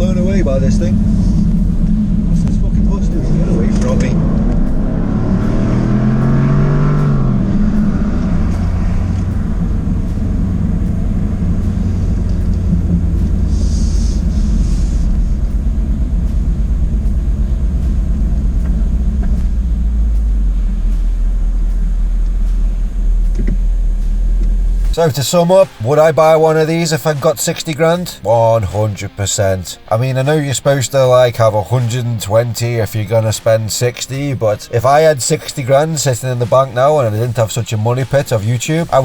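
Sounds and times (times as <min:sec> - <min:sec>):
car engine accelerating: 0:00.0 - 0:39.0
brief hiss: 0:13.2 - 0:15.6.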